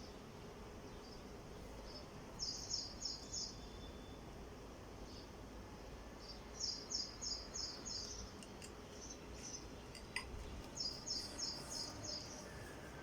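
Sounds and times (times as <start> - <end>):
bird chirping: 1.8 - 4.2, 6.2 - 8.4, 9.0 - 13.0.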